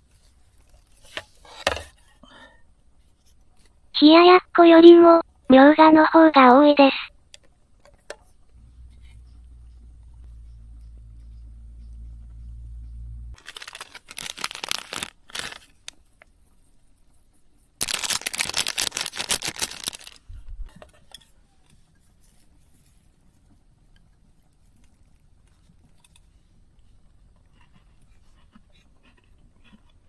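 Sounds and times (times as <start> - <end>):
low hum: 8.5 - 13.4
plastic packaging crinkling: 13.4 - 16.1, 17.8 - 20.3.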